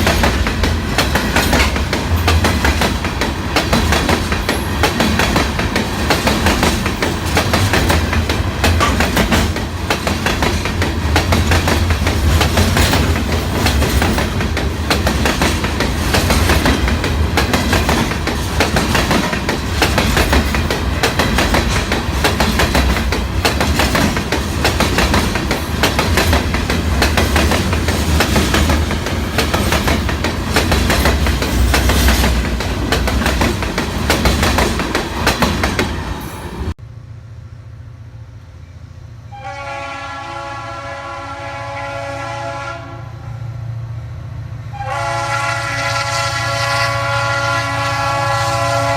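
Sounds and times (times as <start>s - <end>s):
train wheels clickety-clack: 0.0s - 36.8s
low train rumble: 0.0s - 48.9s.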